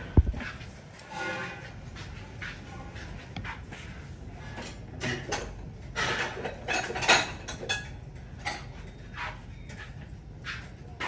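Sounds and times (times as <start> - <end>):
kitchen utensils clattering: 4.4 - 10.7.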